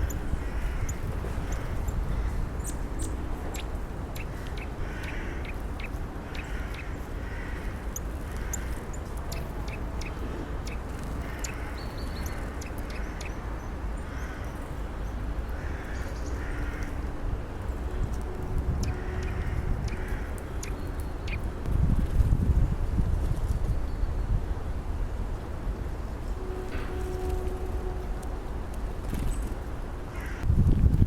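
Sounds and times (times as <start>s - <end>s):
high bird chips and ticks: 0.0s - 13.4s, 18.0s - 21.5s
birds harsh calls: 0.0s - 21.5s, 30.1s - 30.5s
steady low rumble: 0.0s - 31.0s.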